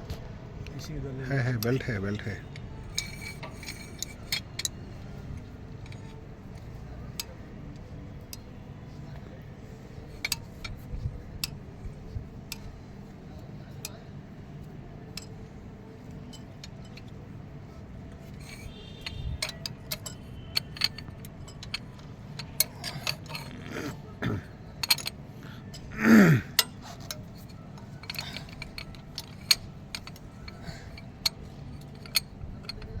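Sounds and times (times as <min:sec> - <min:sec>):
low steady hum: 0:00.0 - 0:33.0
metal tools clinking and tapping: 0:01.5 - 0:07.4, 0:18.1 - 0:25.9, 0:26.5 - 0:33.0.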